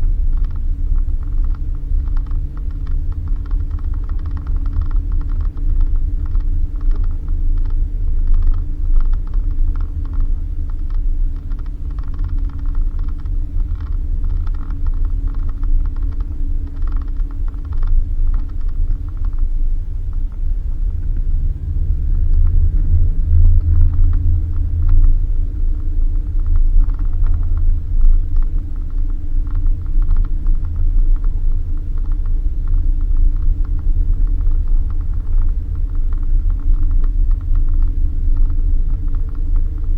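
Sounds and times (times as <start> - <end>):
car engine drone on dirt road: 0.0 - 39.9.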